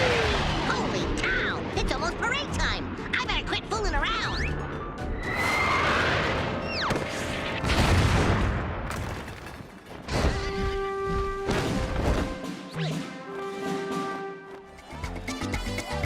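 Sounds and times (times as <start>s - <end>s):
background music: 0.0s - 8.2s, 9.8s - 16.0s
crashing booms: 5.9s - 10.7s.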